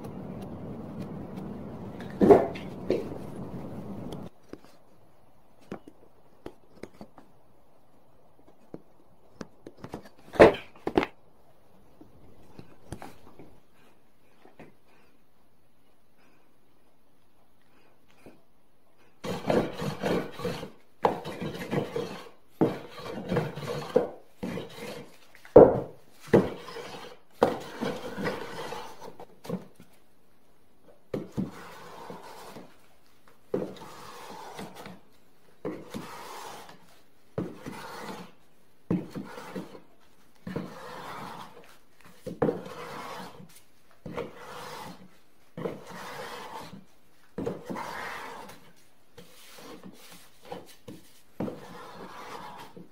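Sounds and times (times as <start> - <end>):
hand tool rubbing wood: 19.0 - 29.6, 31.1 - 52.9.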